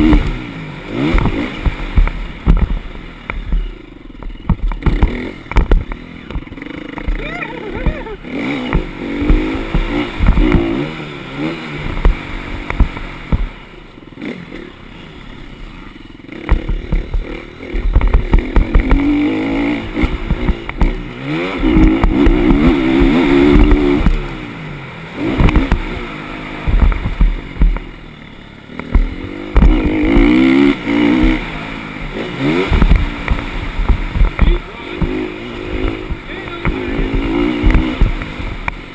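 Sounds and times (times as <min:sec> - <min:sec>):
knocks and rumble: 0:00.0 - 0:11.1, 0:11.8 - 0:13.7, 0:16.4 - 0:24.6, 0:25.2 - 0:28.0, 0:28.7 - 0:38.9
motocross bike engine revving: 0:00.0 - 0:38.9.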